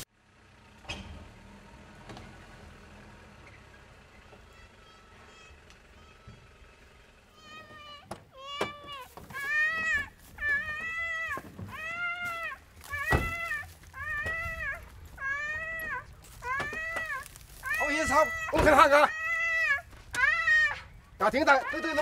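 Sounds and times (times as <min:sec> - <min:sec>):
girl crying: 0:07.3 - 0:20.9.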